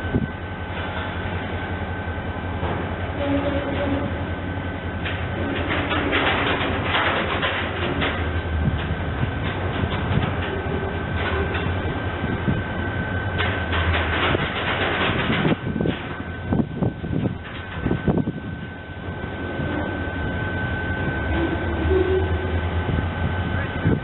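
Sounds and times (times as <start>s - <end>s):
train low rumble: 0.0s - 24.0s
wheels clattering over rail joints: 2.6s - 4.3s, 5.0s - 20.3s
thin high whine: 18.1s - 24.0s.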